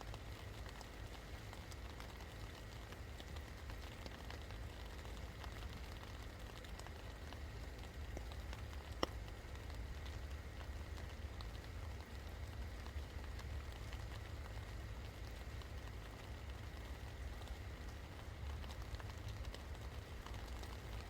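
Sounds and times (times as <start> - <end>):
rain drops ticking: 0.0 - 21.0.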